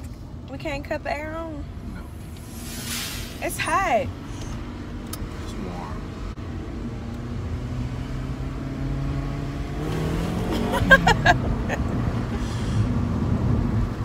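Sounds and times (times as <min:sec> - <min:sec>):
car engine accelerating: 0:01.9 - 0:14.0
short sharp sounds: 0:02.2 - 0:03.6.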